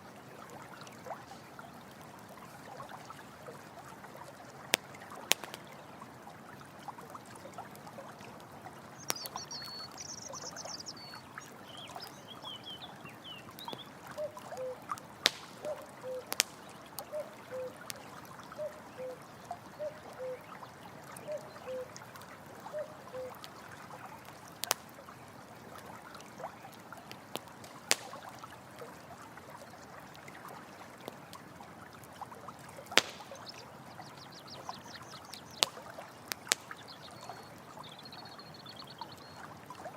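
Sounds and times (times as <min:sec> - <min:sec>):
campfire crackling: 0:00.0 - 0:37.8
stream trickling and splashing: 0:00.0 - 0:39.9
bird chirping: 0:09.0 - 0:14.8, 0:15.6 - 0:20.5, 0:21.2 - 0:21.9, 0:22.7 - 0:23.4.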